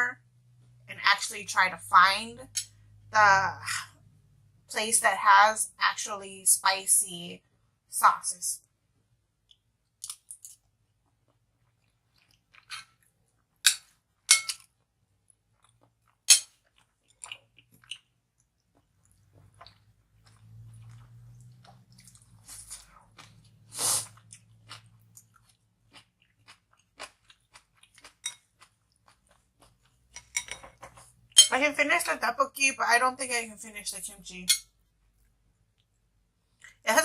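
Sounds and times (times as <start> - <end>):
person chewing food: 9.4 - 31.5.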